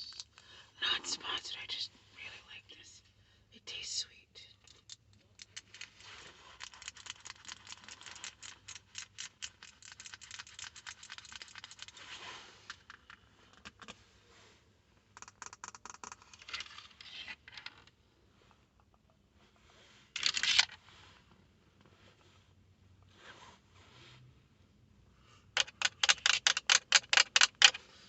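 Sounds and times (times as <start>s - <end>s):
fingernails tapping and scratching: 25.6s - 27.8s.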